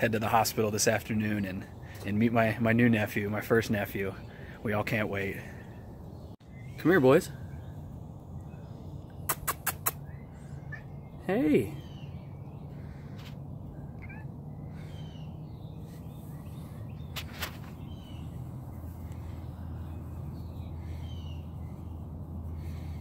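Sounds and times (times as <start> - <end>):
birds chirping: 0.0 - 23.0
sharp click: 9.3 - 10.0
steady low hum: 12.2 - 23.0.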